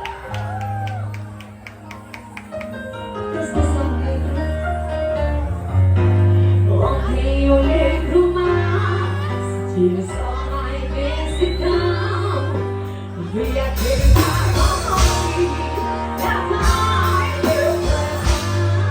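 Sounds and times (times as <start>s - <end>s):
person singing: 6.6s - 18.9s
heavy bass line: 13.4s - 18.9s.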